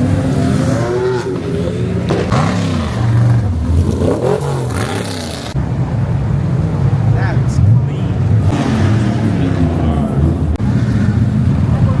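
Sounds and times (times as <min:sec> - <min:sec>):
car engine revving: 0:00.0 - 0:05.6, 0:08.1 - 0:12.0.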